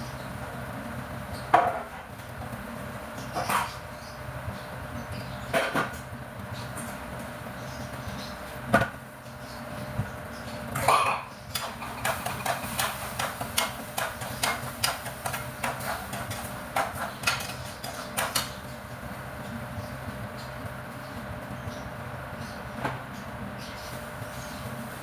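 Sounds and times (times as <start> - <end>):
utensils and cookware knocking: 10.8 - 18.6.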